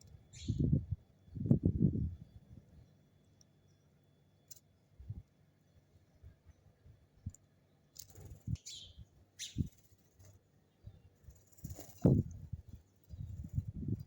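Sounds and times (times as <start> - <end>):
high bird chirps: 0.3 - 0.8, 8.4 - 9.8.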